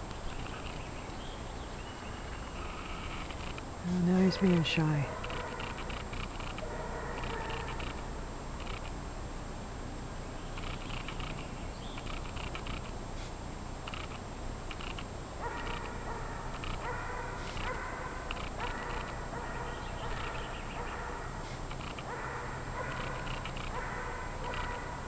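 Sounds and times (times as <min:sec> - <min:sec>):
dog barking and whining: 0:04.1 - 0:08.0, 0:15.4 - 0:25.0.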